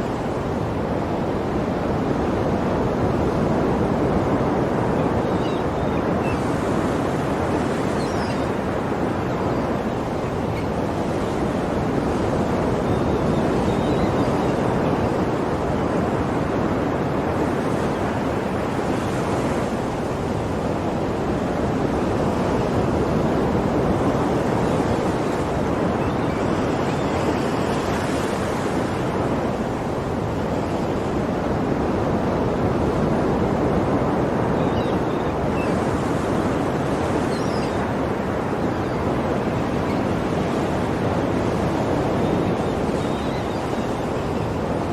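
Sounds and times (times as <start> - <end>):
sea waves breaking on shore: 0.0 - 44.9.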